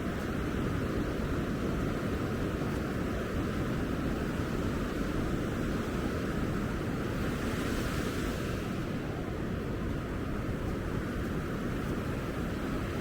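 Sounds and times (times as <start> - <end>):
ocean surf on a beach: 4.7 - 13.0.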